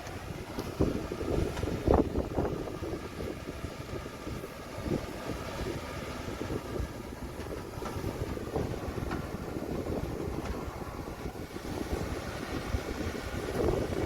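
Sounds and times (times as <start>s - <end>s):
heavy machinery diesel engines rumbling: 0.0s - 14.0s.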